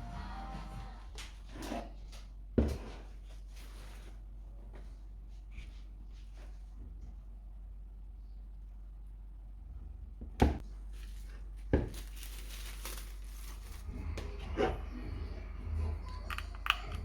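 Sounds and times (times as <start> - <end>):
rustling: 10.8 - 14.9.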